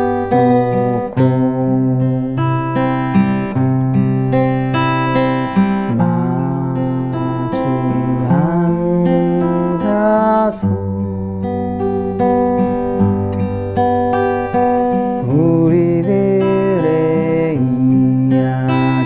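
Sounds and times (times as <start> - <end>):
fingerpicked acoustic guitar: 0.0 - 19.0
person singing long notes: 0.3 - 2.8, 5.8 - 12.2, 15.2 - 19.0.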